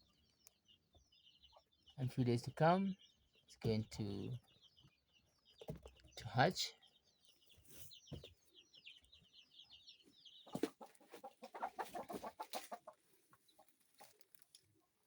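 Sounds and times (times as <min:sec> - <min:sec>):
chicks peeping: 0:00.0 - 0:15.0
chicken clucking: 0:03.2 - 0:14.9.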